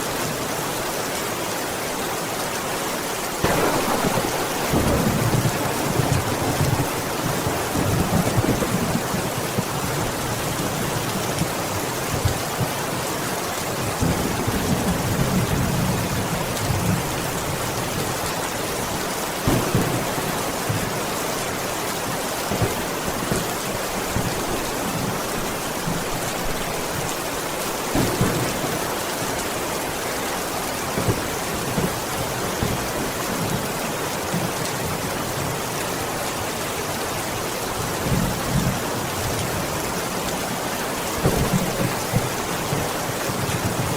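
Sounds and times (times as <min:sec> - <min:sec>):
rain falling: 0:00.0 - 0:43.9
thunder rumbling: 0:03.4 - 0:11.0, 0:19.4 - 0:21.7, 0:22.5 - 0:29.6.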